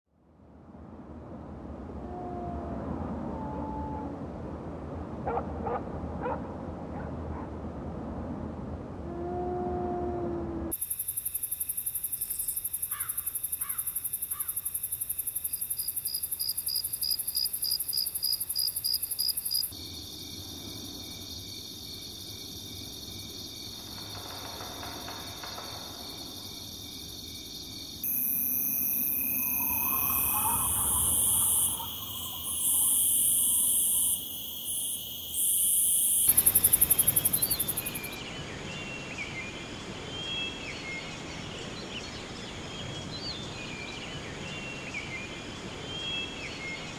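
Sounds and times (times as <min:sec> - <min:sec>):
fast-pulsing insect chorus: 0:10.8 - 0:38.2
high-pitched insect drone: 0:28.0 - 0:38.2
steady high tones: 0:28.1 - 0:34.2.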